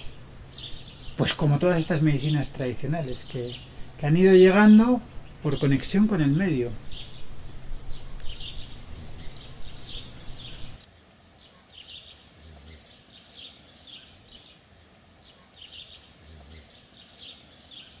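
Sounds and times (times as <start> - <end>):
bird chirping: 0.0 - 10.8, 11.4 - 14.6, 15.2 - 18.0
low background rumble: 0.0 - 10.8.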